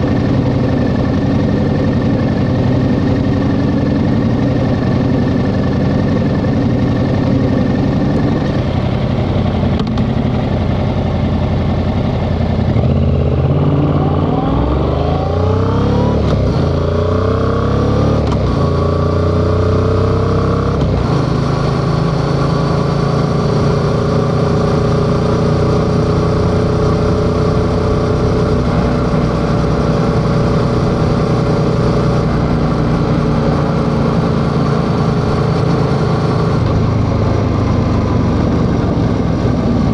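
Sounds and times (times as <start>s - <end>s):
motorcycle engine revving and shifting: 0.0s - 39.9s.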